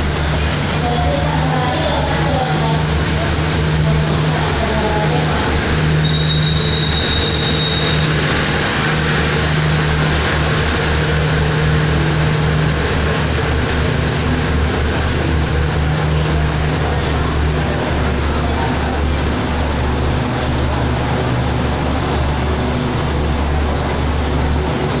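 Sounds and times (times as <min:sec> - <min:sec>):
train engine drone: 0:00.0 - 0:25.0
wheel squeal: 0:05.9 - 0:08.4.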